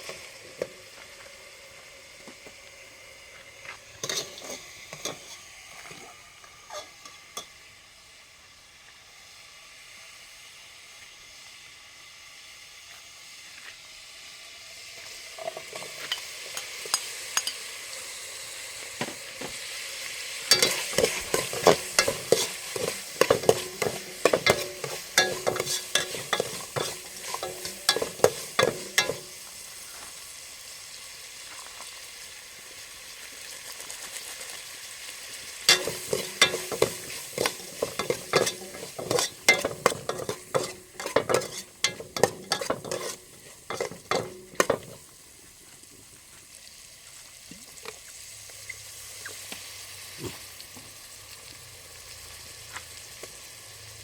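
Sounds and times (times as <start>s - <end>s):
food sizzling: 0.0s - 54.0s
metal utensil scraping a pan: 4.0s - 7.5s, 15.4s - 17.9s, 20.3s - 29.9s, 35.5s - 45.1s.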